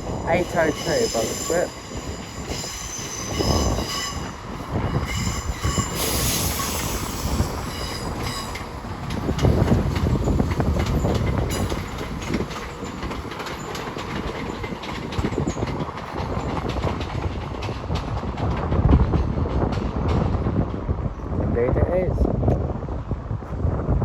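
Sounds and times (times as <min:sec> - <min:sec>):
train rumbling: 0:00.0 - 0:24.0
wheel clicks over rail joints: 0:08.6 - 0:20.3.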